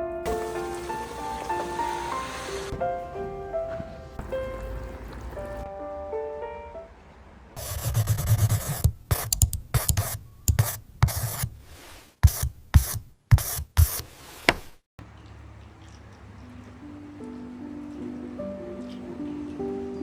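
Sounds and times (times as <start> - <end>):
rubbing strokes: 0.3 - 4.4, 7.6 - 14.8.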